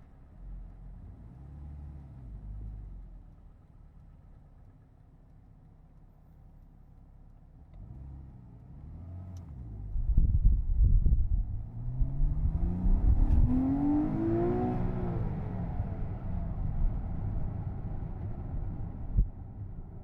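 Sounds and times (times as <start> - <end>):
car engine accelerating: 7.7 - 19.8.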